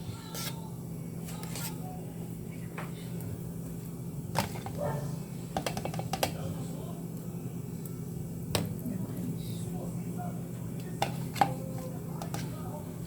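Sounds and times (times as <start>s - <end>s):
utensil tapping baking tray: 5.6s - 6.4s.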